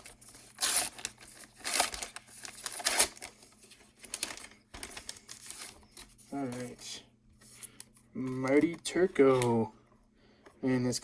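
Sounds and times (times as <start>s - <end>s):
card pack wrapper crinkling: 0.0s - 6.8s
cards being handled: 0.0s - 9.7s.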